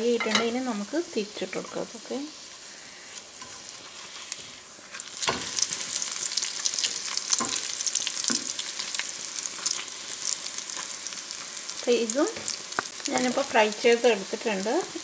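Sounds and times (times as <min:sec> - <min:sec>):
food sizzling in hot oil: 0:00.0 - 0:15.0
spatula tapping pan: 0:07.3 - 0:08.6.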